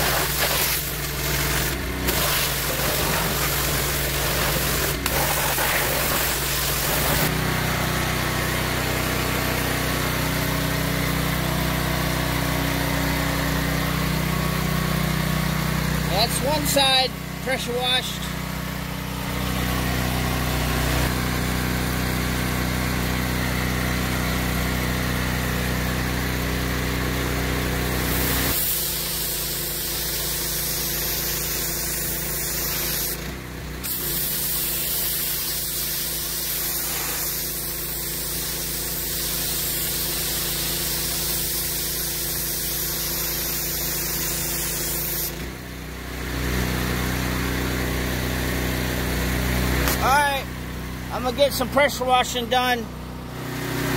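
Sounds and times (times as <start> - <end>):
water jet spraying on metal: 0.0 - 7.3, 28.1 - 33.2, 33.8 - 45.4
pressure washer engine running: 0.0 - 53.9.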